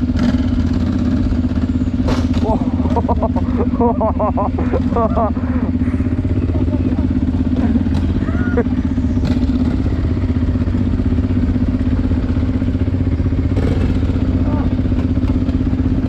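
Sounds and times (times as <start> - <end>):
motorcycle engine idling: 0.0 - 16.0
person calling out: 2.4 - 5.8, 14.4 - 14.8.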